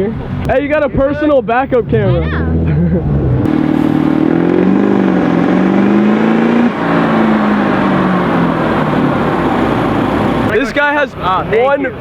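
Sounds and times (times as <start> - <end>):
car engine revving: 1.6 - 10.5.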